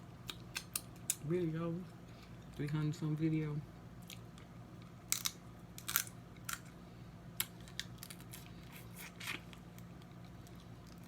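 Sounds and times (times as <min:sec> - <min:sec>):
crab shells cracking: 0:05.0 - 0:06.8.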